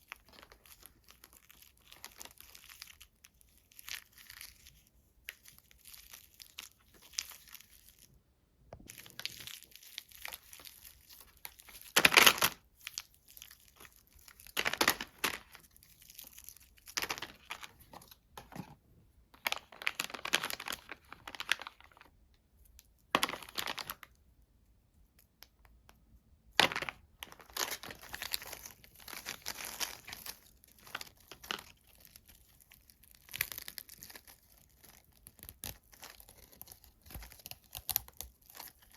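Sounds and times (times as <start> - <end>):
wrapper crinkling and tearing: 19.6 - 22.1, 26.6 - 38.9.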